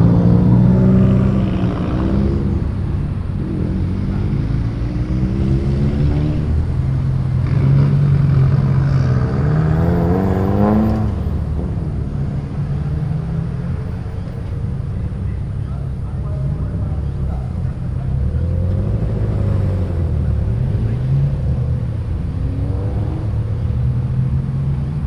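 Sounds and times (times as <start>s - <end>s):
car engines accelerating: 0.0s - 25.0s.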